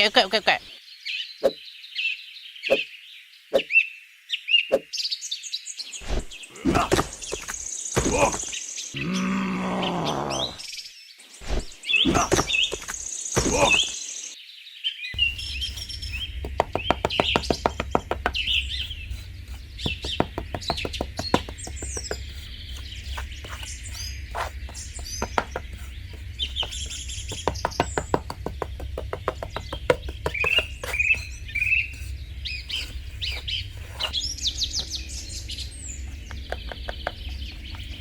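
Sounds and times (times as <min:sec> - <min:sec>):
birds chirping: 0:00.0 - 0:14.4, 0:15.1 - 0:38.0
sharp clicks and taps: 0:15.2 - 0:34.2, 0:36.1 - 0:38.0
low steady hum: 0:15.2 - 0:38.0.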